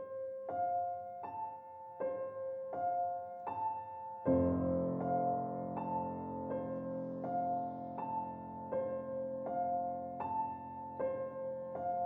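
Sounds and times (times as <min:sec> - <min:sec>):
slow sad solo piano: 0:00.0 - 0:12.0.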